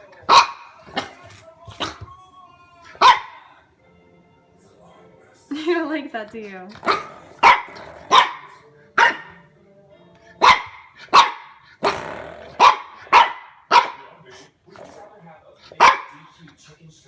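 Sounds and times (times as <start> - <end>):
puppy barking: 0.2 - 2.1, 2.9 - 3.5, 6.8 - 9.4, 10.4 - 12.0, 12.6 - 14.2, 15.7 - 16.3.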